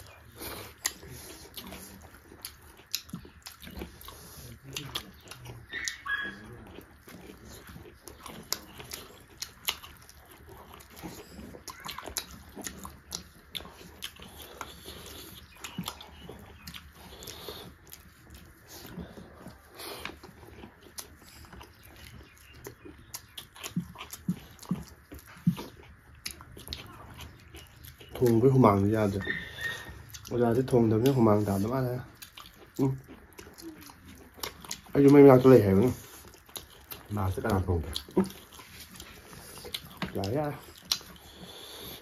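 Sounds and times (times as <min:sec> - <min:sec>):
wet mouth clicks: 0:00.0 - 0:06.4, 0:08.3 - 0:21.8, 0:35.8 - 0:42.0
chewing and lip smacking: 0:00.0 - 0:42.0.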